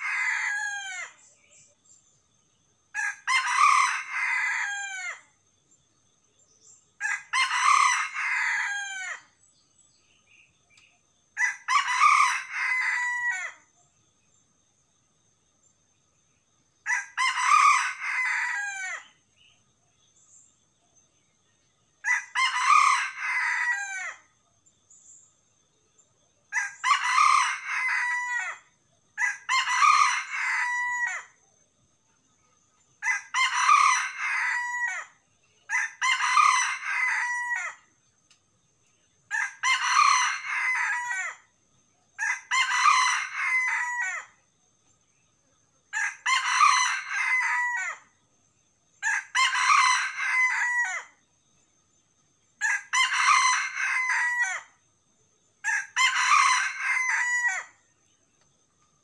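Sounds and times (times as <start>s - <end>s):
rooster crowing: 0.0s - 1.2s, 2.9s - 5.2s, 7.0s - 9.3s, 11.4s - 13.7s, 16.8s - 19.1s, 22.0s - 24.3s, 26.5s - 31.4s, 33.0s - 37.9s, 39.3s - 41.5s, 42.2s - 44.4s, 45.9s - 48.1s, 49.0s - 51.2s, 52.6s - 54.8s, 55.6s - 57.8s.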